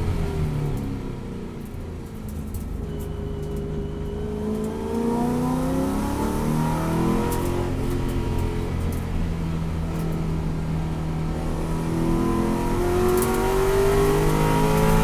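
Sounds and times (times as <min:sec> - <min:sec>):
race car engine accelerating: 0:11.2 - 0:15.0.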